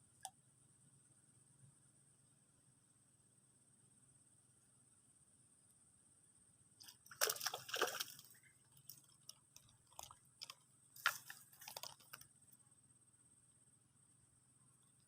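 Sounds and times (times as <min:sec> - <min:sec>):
faint high-pitched hum: 0:00.0 - 0:11.4, 0:12.0 - 0:15.0
wet sloshing and crackling: 0:06.8 - 0:12.2.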